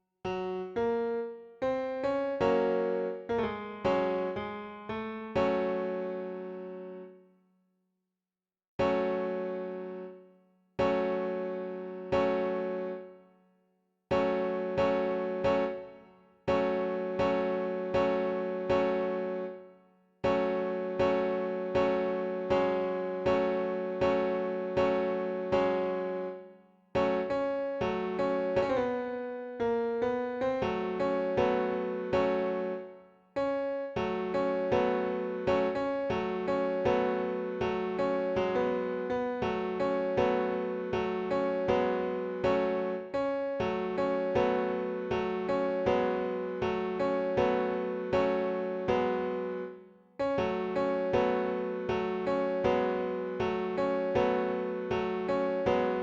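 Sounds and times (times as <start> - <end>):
electric piano melody: 0.3 - 7.0, 8.8 - 10.2, 14.1 - 19.6, 27.0 - 56.0.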